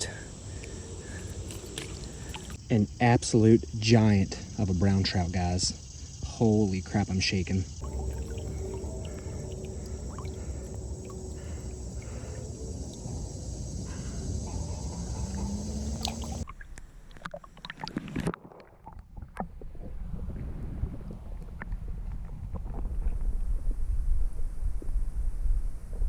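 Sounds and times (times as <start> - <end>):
creek water rushing: 0.0 - 2.6, 7.8 - 16.4.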